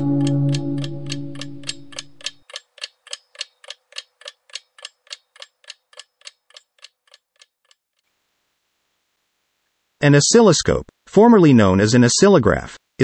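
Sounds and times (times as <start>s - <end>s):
music chord: 0.0s - 2.3s
clock-like ticking: 0.0s - 7.8s.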